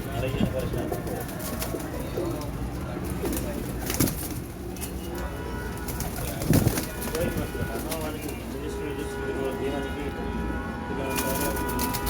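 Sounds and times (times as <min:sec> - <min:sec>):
pigeons cooing: 0:00.0 - 0:04.7.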